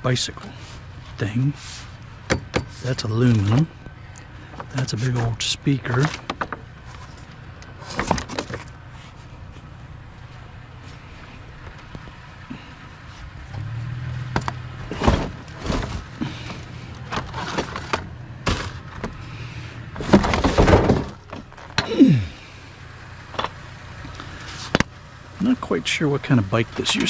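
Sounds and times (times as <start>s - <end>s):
low engine hum: 0.0s - 27.0s
scrap metal knocking and clanking: 2.2s - 3.7s, 14.3s - 22.0s
rattling: 13.4s - 22.5s.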